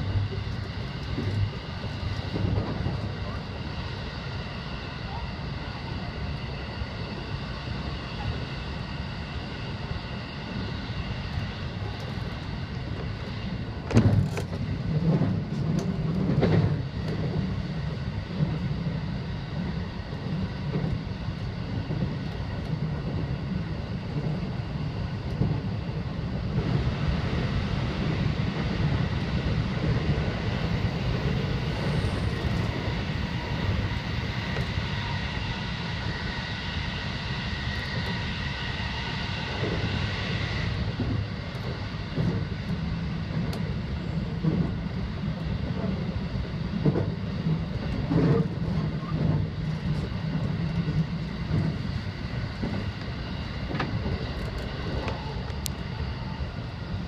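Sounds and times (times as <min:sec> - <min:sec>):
steady train tones: 0:00.0 - 0:57.0
train wheels rumbling on rail: 0:00.0 - 0:57.0.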